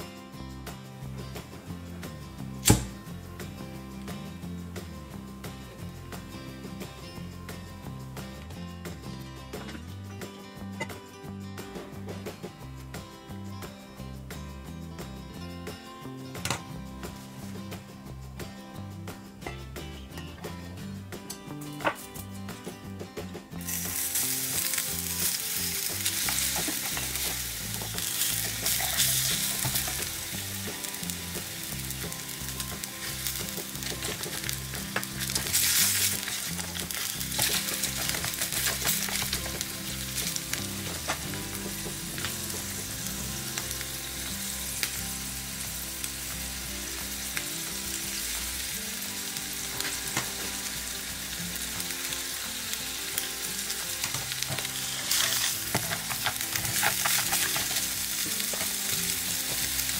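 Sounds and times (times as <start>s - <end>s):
food sizzling in a pan: 23.5s - 59.9s.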